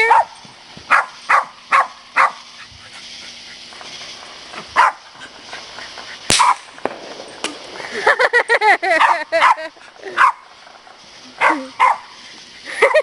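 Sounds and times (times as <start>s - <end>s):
dog barking: 0.0s - 2.5s, 4.8s - 5.0s, 9.0s - 10.4s, 11.4s - 12.1s.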